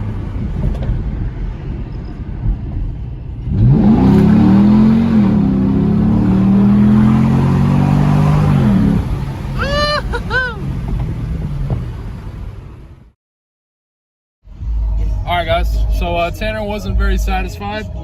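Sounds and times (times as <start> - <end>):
car engine accelerating: 0.0 - 13.2.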